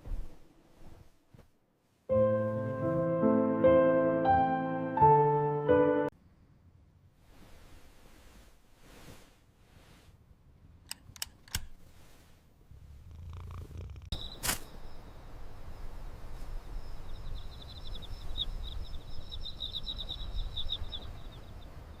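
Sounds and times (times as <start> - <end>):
sharp clicks: 10.8 - 11.8
cat purring: 12.7 - 14.2.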